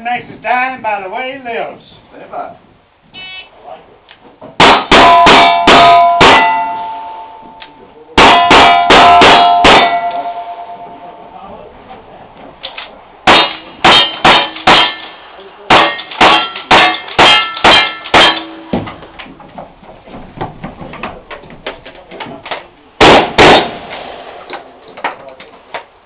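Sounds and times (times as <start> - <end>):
rapid gunshots: 4.6 - 6.6, 8.2 - 10.0, 23.0 - 24.4
steel targets ringing: 4.6 - 11.2, 13.2 - 19.0.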